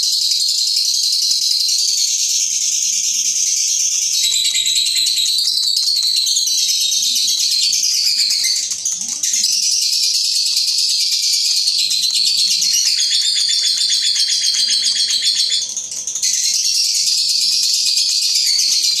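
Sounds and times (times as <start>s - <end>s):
lovebird shrill chattering: 3.8s - 19.0s.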